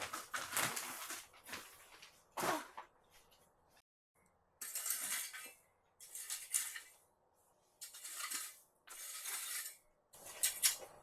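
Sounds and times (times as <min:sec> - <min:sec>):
plastic mat rustling and crinkling: 0:00.0 - 0:03.8.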